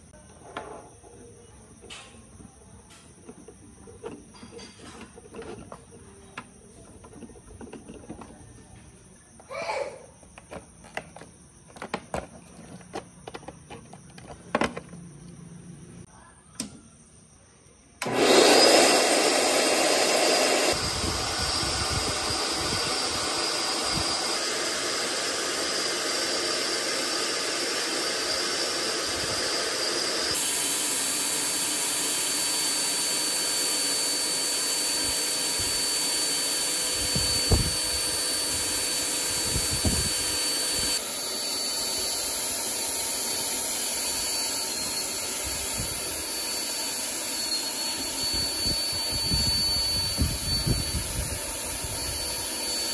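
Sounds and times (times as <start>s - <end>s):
blower motor whirring: 18.0s - 52.9s.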